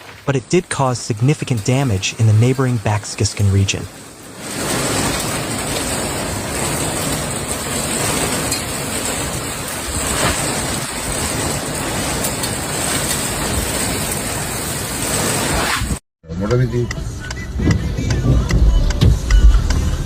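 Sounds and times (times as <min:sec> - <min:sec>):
heavy rain: 0:00.0 - 0:16.0
wind: 0:00.0 - 0:19.8.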